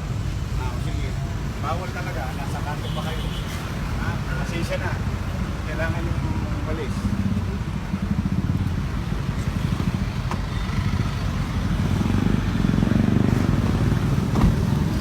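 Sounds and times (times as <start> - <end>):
vehicle engine rumbling: 3.6 - 15.0.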